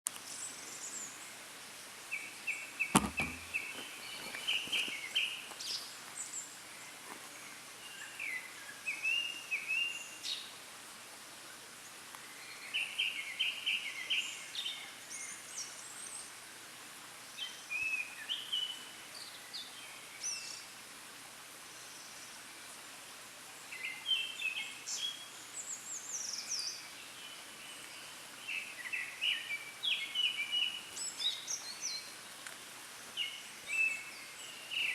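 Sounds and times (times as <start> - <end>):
sharp knock: 2.9 - 3.6.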